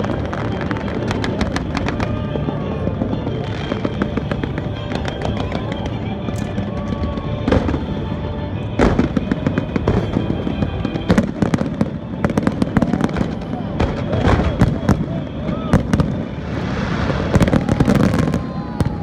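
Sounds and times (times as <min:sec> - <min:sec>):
fireworks bangs: 0:00.0 - 0:19.0
fireworks crackling and popping: 0:00.0 - 0:19.0
music: 0:00.0 - 0:19.0.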